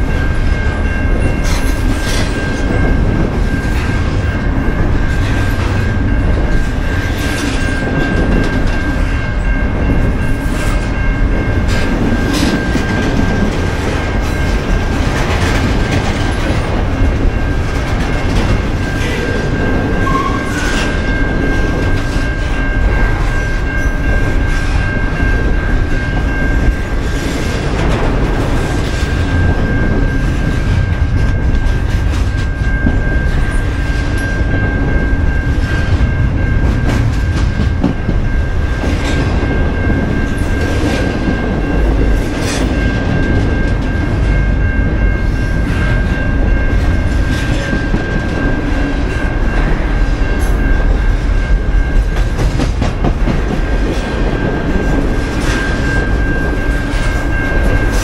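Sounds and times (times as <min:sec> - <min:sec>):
train wheels clacking over rail joints: 0:00.8 - 0:34.3, 0:51.9 - 0:58.0.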